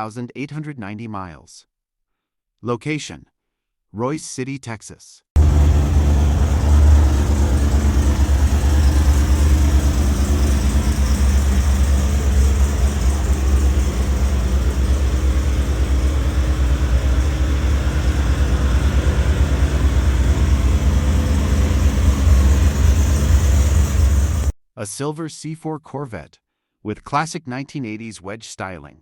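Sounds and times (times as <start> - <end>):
car engine idling: 5.4 - 24.5.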